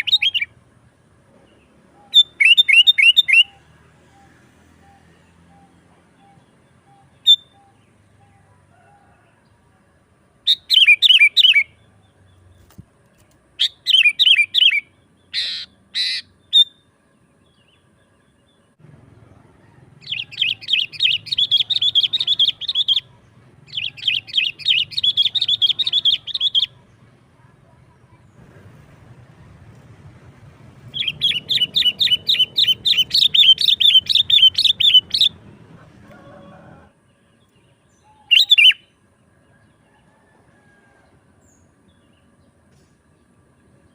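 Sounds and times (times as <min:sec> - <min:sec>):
bulbul singing: 0:00.0 - 0:00.6, 0:01.4 - 0:08.5, 0:10.4 - 0:12.8, 0:13.6 - 0:28.4, 0:30.6 - 0:39.0
harsh rasping bird calls: 0:13.6 - 0:16.8, 0:20.0 - 0:26.9, 0:30.9 - 0:36.9
fast bird chattering: 0:13.7 - 0:16.3, 0:20.0 - 0:23.1, 0:23.7 - 0:26.9, 0:30.9 - 0:35.4.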